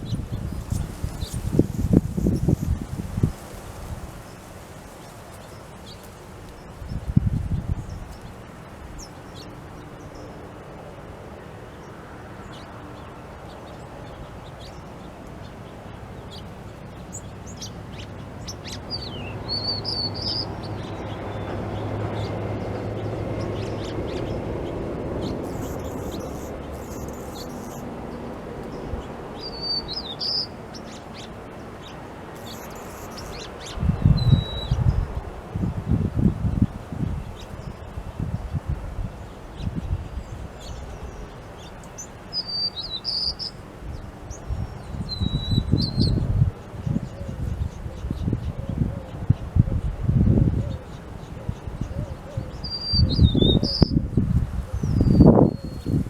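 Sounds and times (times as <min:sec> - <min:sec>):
birds chirping: 0:11.4 - 0:35.2, 0:39.5 - 0:46.2, 0:50.7 - 0:54.0, 0:54.7 - 0:56.0.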